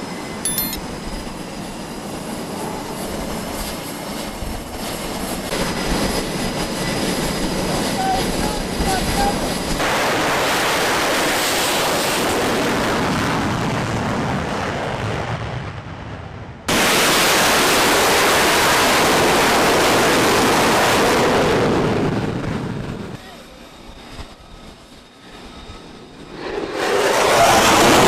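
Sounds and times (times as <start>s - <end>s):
jet aircraft roar: 0.0s - 28.0s.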